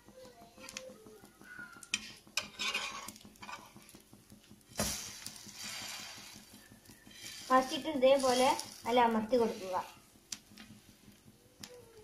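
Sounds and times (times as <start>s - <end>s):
bread frying in oil: 0.0s - 12.0s
metal spatula scraping a pan: 1.7s - 4.1s, 4.7s - 10.0s.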